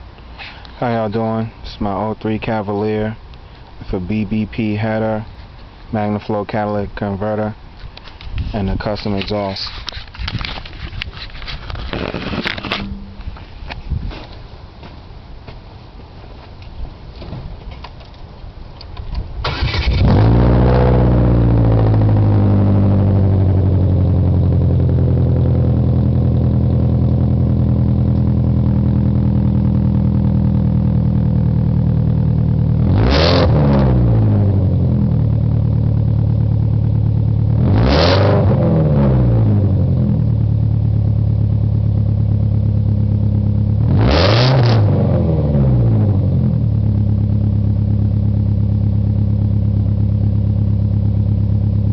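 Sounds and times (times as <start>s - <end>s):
car engine starting and idling: 8.8s - 13.7s, 17.0s - 51.9s
car engine revving: 19.4s - 51.9s.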